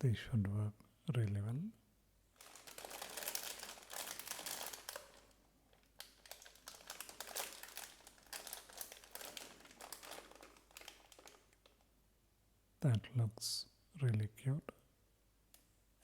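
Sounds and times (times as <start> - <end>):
plastic snack bag crinkling: 2.4 - 11.9.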